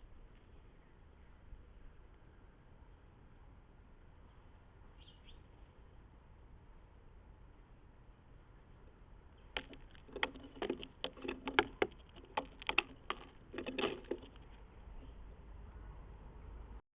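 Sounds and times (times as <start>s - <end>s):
birds scuffling and tapping: 9.5s - 15.3s.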